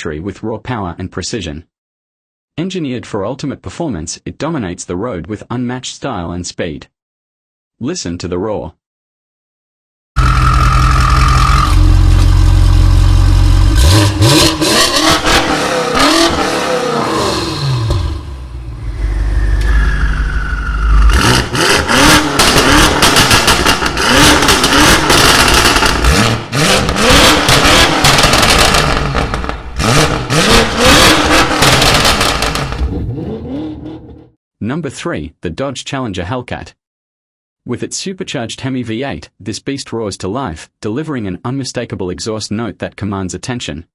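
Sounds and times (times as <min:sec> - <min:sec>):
exhaust cracks: 0:10.2 - 0:33.3
car exhaust revving: 0:10.2 - 0:34.3.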